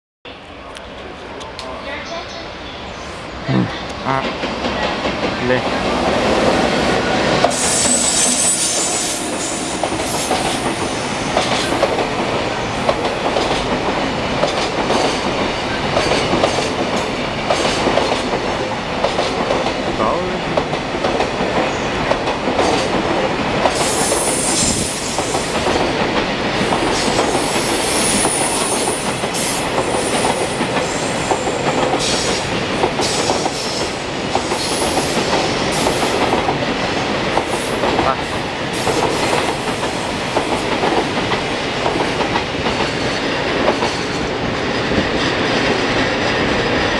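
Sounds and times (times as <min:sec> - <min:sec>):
train wheels clattering over rails: 0:04.2 - 0:20.0, 0:20.6 - 0:46.9
high wheel squeal: 0:07.5 - 0:11.0.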